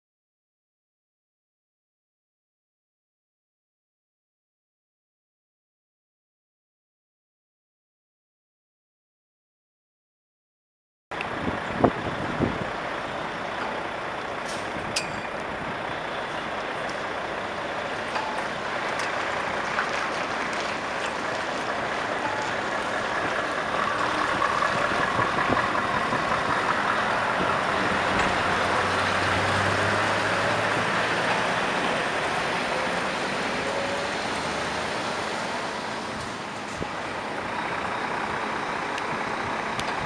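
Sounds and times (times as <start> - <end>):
truck engine rushing noise: 11.2 - 40.0.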